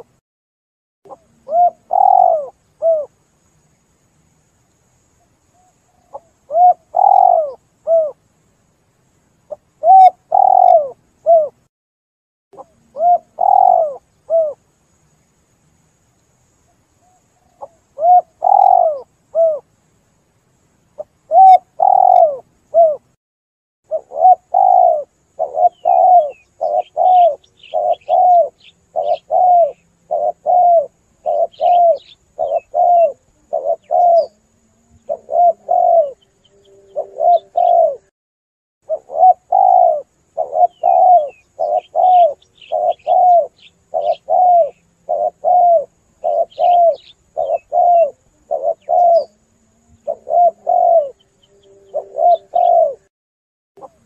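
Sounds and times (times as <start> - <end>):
dove cooing: 1.1 - 3.2, 5.6 - 8.2, 9.5 - 11.6, 12.6 - 14.6, 17.0 - 19.7, 21.0 - 23.1, 23.9 - 38.1, 38.9 - 53.1
small birds chirping: 1.1 - 11.6, 12.6 - 20.2, 20.8 - 23.0, 23.9 - 38.0, 38.9 - 53.1.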